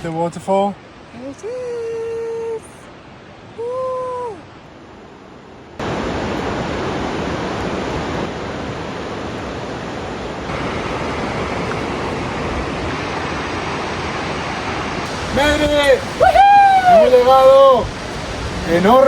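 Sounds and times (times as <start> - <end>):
waterfall rushing: 5.8 - 19.0.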